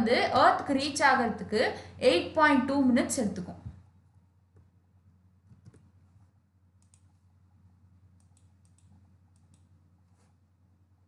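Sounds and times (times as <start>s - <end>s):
faint room hum: 0.0s - 11.0s
soft clicks: 6.8s - 7.3s, 8.2s - 9.8s.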